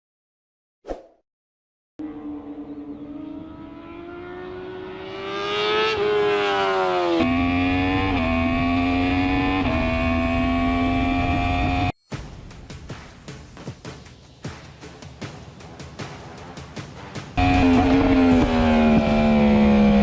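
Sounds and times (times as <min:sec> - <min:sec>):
motorcycle engine accelerating: 0:02.0 - 0:11.9, 0:17.4 - 0:20.0.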